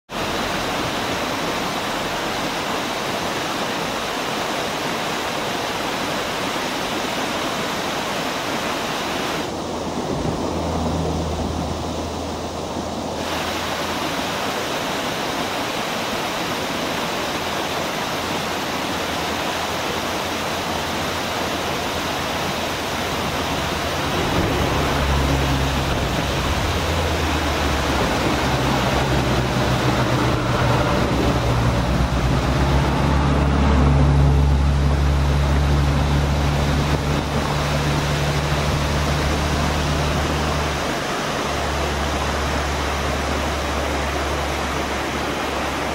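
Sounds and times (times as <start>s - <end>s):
waterfall rushing: 0.1s - 45.9s
low engine hum: 9.5s - 14.3s, 18.2s - 45.9s.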